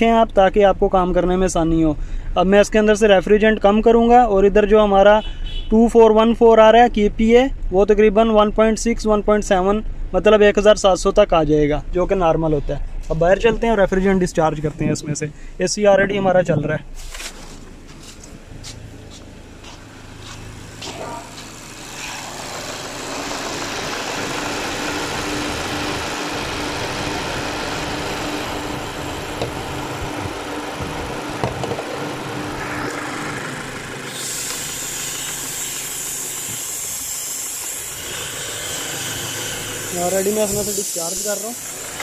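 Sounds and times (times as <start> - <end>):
car engine idling: 9.5 - 42.0
refrigerant gas hissing: 21.2 - 32.2, 32.9 - 42.0.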